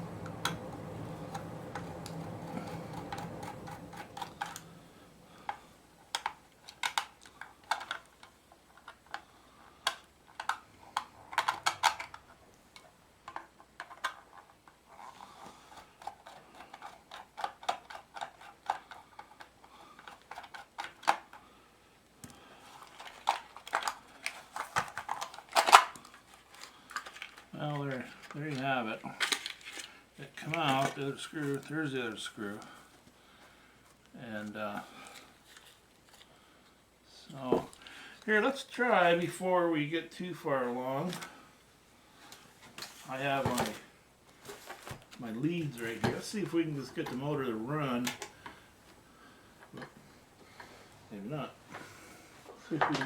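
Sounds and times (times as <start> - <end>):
metal scraping on plastic: 0.0 - 8.1.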